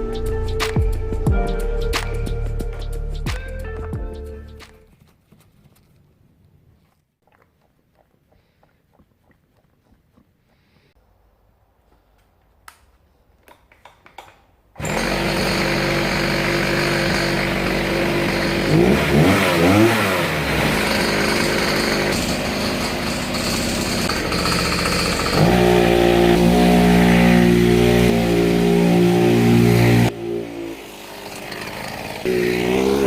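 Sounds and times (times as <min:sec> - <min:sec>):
small two-stroke engine revving: 0:14.8 - 0:33.0.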